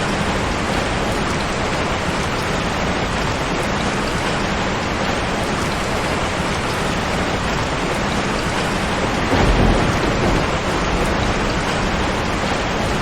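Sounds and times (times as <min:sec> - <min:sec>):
heavy rain: 0:00.0 - 0:13.0
thunder rumbling: 0:08.1 - 0:13.0.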